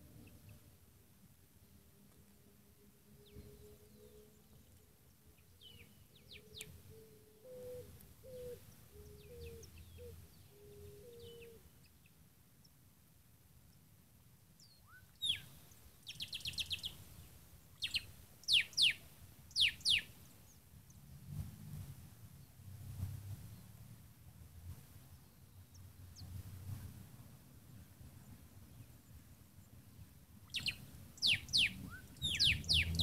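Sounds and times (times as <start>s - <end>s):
birds chirping: 3.2s - 11.6s, 14.6s - 17.0s, 17.6s - 21.0s, 30.4s - 33.0s
bird trill: 14.8s - 15.5s, 17.8s - 20.1s, 30.4s - 33.0s.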